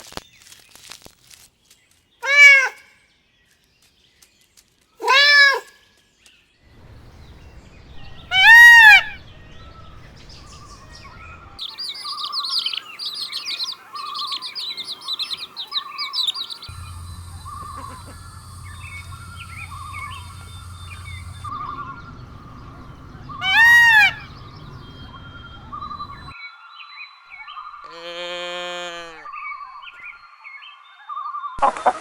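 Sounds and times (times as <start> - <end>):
birds chirping rapidly: 2.2 - 2.8, 6.7 - 26.4
cat meowing: 2.2 - 2.8, 5.0 - 5.7, 8.3 - 9.2, 23.4 - 24.3
low hum: 6.7 - 8.4, 14.7 - 26.3.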